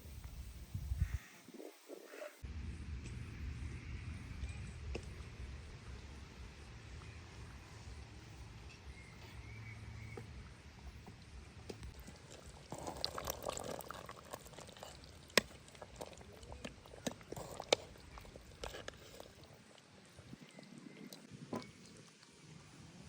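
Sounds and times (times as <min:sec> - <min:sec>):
liquid pouring: 0:12.0 - 0:22.4.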